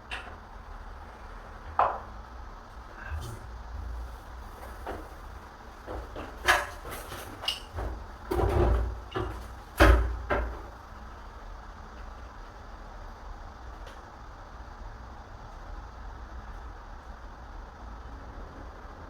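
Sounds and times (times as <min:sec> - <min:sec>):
door scraping: 0:02.8 - 0:09.0
knocks and clunks on door: 0:07.7 - 0:10.8.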